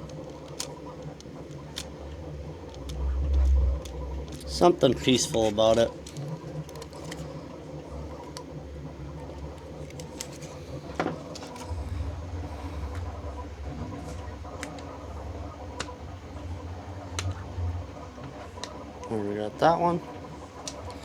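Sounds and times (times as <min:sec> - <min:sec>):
vinyl being peeled by hand: 0:00.0 - 0:11.8
steady low hum: 0:00.0 - 0:21.0.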